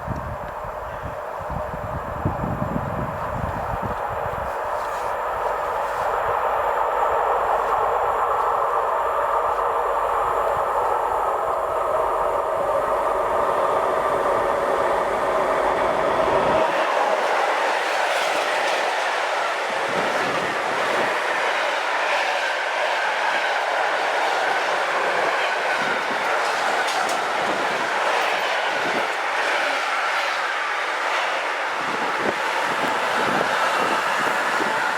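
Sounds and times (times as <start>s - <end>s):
train passing: 0.0s - 34.9s.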